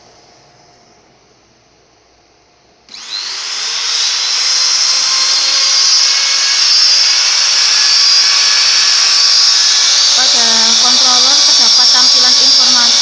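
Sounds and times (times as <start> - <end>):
spindle motor whine: 2.9 - 13.0.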